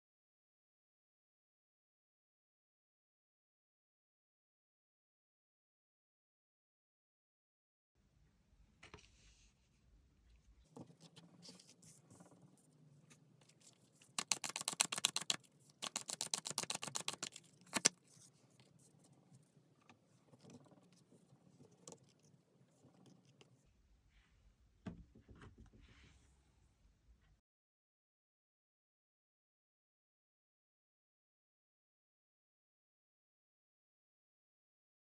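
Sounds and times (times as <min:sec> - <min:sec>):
cards rustling and tapping: 0:13.4 - 0:18.3
rapid card flicking: 0:14.0 - 0:18.0
card snap: 0:14.2 - 0:18.0.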